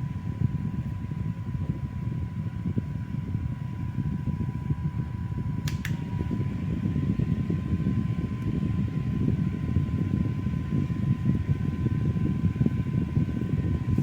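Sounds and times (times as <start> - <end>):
electric fan running: 0.0 - 14.0
faint steady whine: 0.0 - 14.0
sharp clicks: 5.6 - 6.0.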